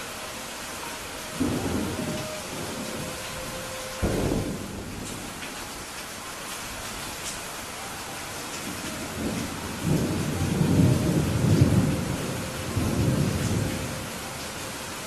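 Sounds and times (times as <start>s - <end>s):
rain falling: 0.0s - 15.0s
thunder rolling: 1.4s - 5.6s, 8.9s - 14.2s.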